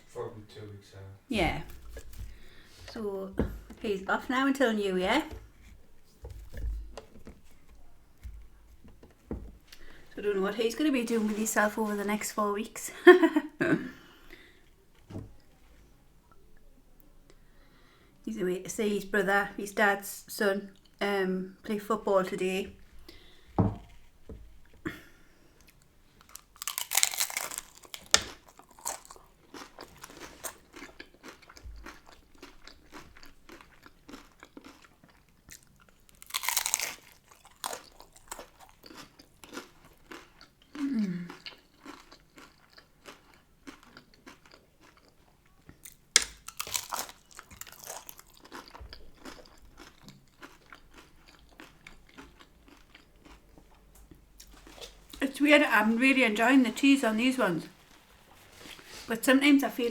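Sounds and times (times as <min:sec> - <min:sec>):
crackly chewing: 0:01.6 - 0:04.3, 0:25.6 - 0:55.2
crunching bites into tacos: 0:26.2 - 0:55.0.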